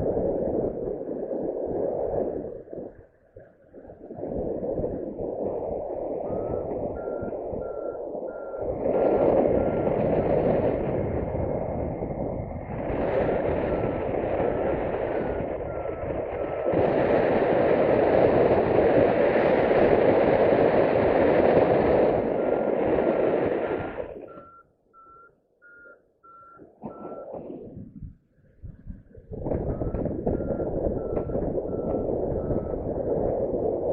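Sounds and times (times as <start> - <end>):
wind rushing across microphone: 0.0 - 24.6, 26.7 - 33.9
variometer beeping: 6.2 - 10.2, 13.2 - 17.0, 23.7 - 27.6, 29.5 - 33.2.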